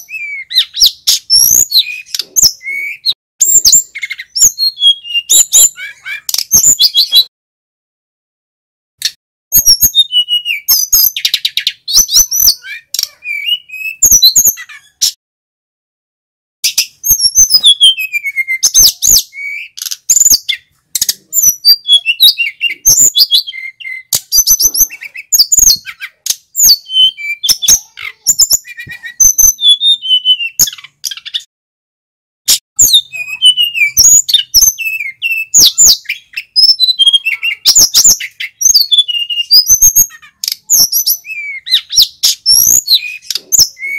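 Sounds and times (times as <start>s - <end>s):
bird song chirps and trills: 0.0s - 7.3s, 9.0s - 15.2s, 16.6s - 31.5s, 32.5s - 43.9s.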